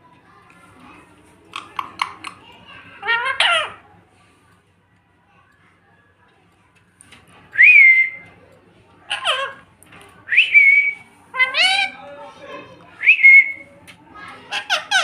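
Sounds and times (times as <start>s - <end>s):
parrot harsh voice-like calls: 3.0s - 3.8s, 9.1s - 9.7s, 11.3s - 12.0s, 14.5s - 15.0s.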